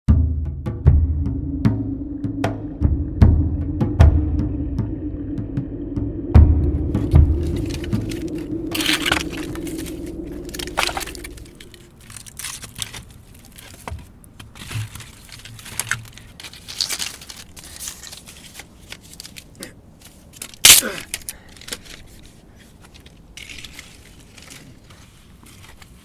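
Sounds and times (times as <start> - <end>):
intro music with deep drum: 0.1 - 11.6
dry leaves crackling and rustling: 15.1 - 19.4.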